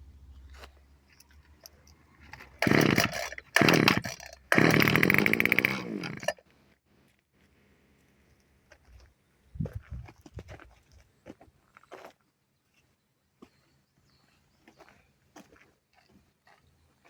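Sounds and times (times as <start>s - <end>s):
hedge trimmer engine firing: 2.3s - 6.4s.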